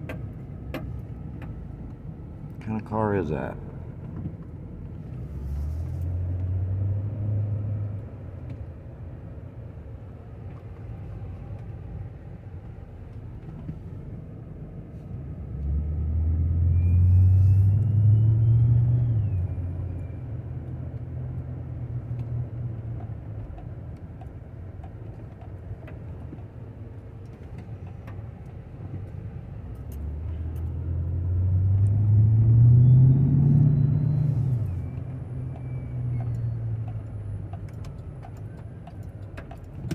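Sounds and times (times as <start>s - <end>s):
motor vehicles passing: 0.0s - 39.9s.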